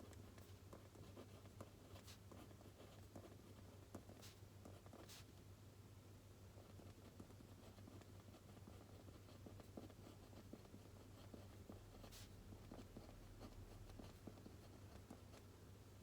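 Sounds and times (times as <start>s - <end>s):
pencil scratching on paper: 6.8s - 15.4s.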